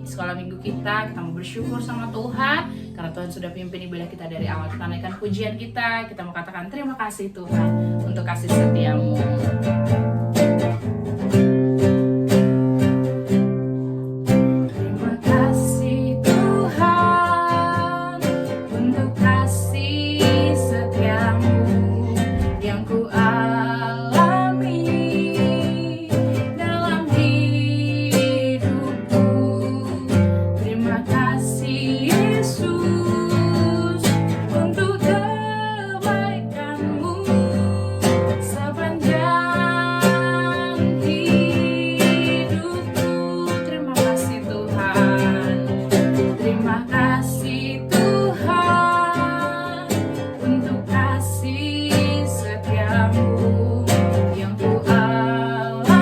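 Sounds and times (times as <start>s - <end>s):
strummed acoustic guitar: 0.0s - 5.5s, 7.4s - 56.0s
person singing: 14.7s - 56.0s.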